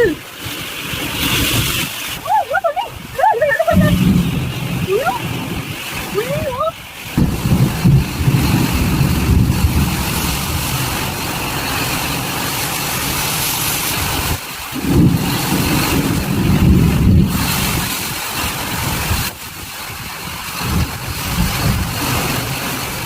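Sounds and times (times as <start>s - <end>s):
storm wind gusting on microphone: 0.0s - 23.0s.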